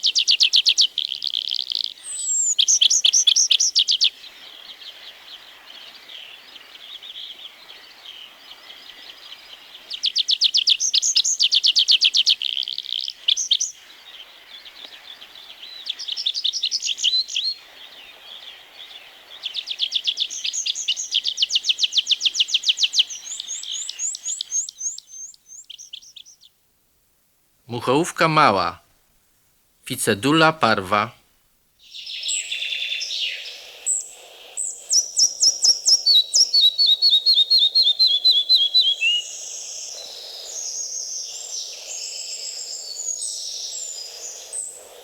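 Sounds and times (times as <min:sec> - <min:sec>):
faint bird chatter: 0:00.0 - 0:26.5.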